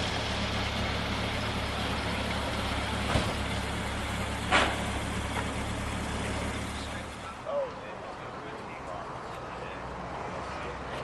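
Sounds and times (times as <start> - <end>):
vehicle engine running: 0.0 - 7.4.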